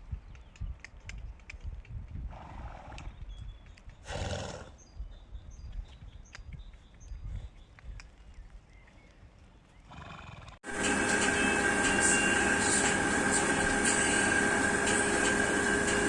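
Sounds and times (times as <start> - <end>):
horse breathy snorts: 4.1 - 4.8.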